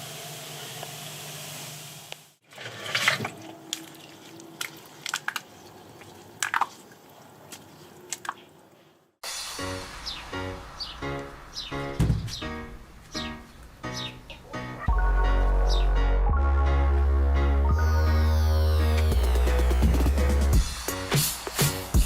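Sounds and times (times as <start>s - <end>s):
liquid dripping and splattering: 3.2s - 8.5s
foam fizzing hiss: 9.2s - 11.5s.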